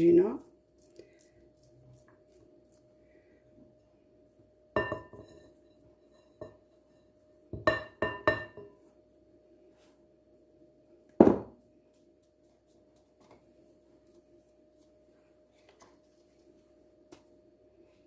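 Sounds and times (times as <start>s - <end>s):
faint steady hum: 0.4s - 18.0s
kitchenware clinking: 4.8s - 8.8s.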